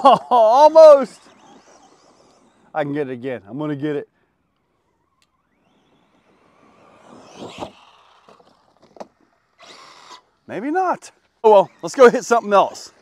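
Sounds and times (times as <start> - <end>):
tyres on dirt: 0.0 - 13.0
toy truck electric motor: 0.6 - 2.8, 4.3 - 10.5.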